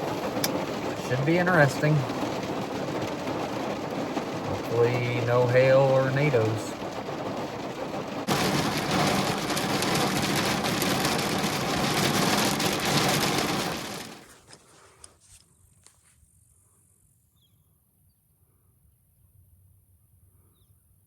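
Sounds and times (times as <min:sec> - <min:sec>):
heavy rain hitting a truck: 0:00.0 - 0:14.5.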